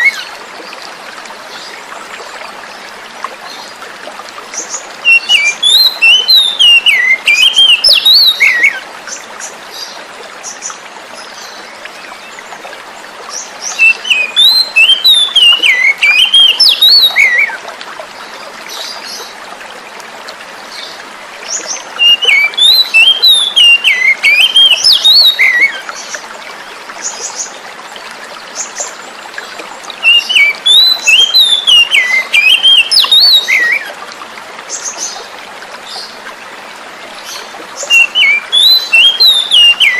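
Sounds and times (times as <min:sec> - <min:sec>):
flowing water: 0:00.0 - 0:39.9
bird warbling song: 0:04.6 - 0:12.5, 0:13.3 - 0:17.6, 0:20.7 - 0:27.6, 0:28.5 - 0:33.9, 0:37.2 - 0:39.9.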